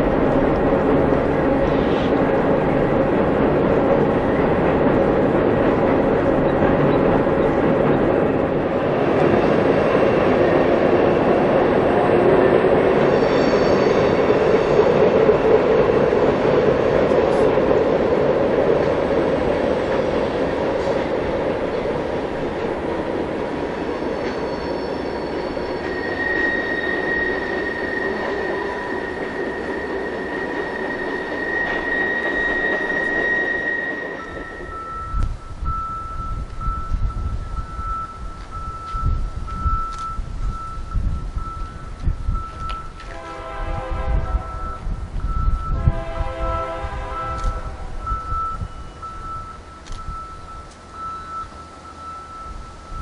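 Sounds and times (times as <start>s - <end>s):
train wheels rumbling on rail: 0.0s - 53.0s
high wheel squeal: 12.0s - 15.1s, 24.0s - 43.0s.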